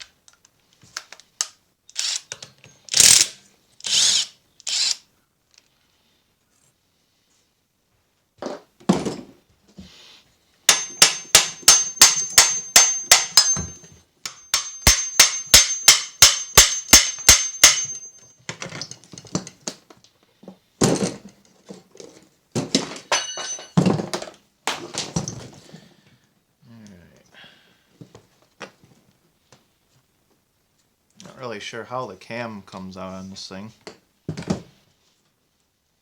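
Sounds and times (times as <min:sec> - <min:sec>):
hammer striking metal: 0:10.7 - 0:18.3, 0:23.1 - 0:23.8.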